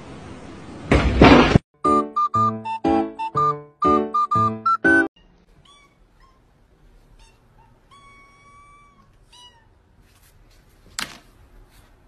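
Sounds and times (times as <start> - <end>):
kittens meowing: 5.2 - 6.5, 7.1 - 9.8.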